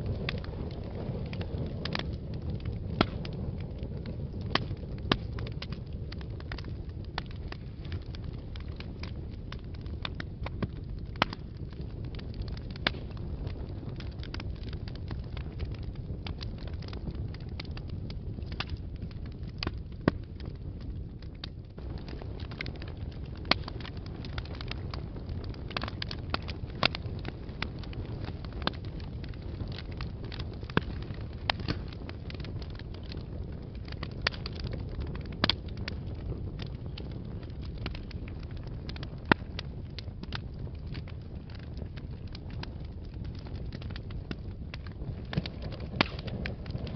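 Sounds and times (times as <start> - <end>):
fire crackling and snapping: 0.0 - 46.9
low rumble of flames: 0.0 - 46.9.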